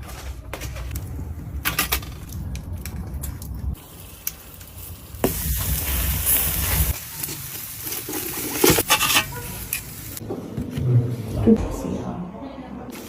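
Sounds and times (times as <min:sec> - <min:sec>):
food sizzling in a pan: 0:03.8 - 0:10.2.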